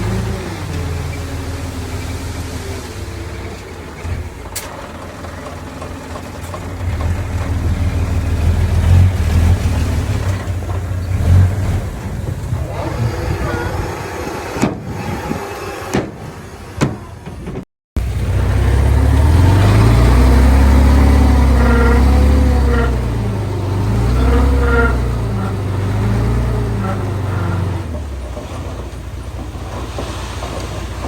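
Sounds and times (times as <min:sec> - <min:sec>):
heavy diesel engine working: 0:00.0 - 0:31.0
sharp knocks: 0:14.5 - 0:17.6.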